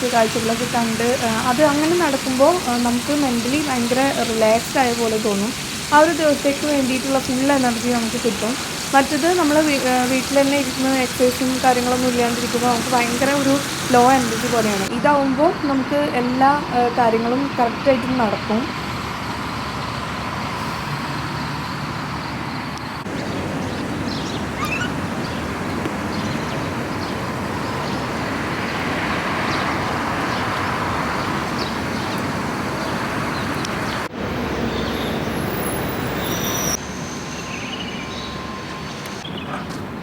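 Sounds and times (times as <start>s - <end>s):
road traffic rush: 0.0s - 40.0s
faint bird chirps: 23.2s - 25.4s, 34.6s - 39.5s.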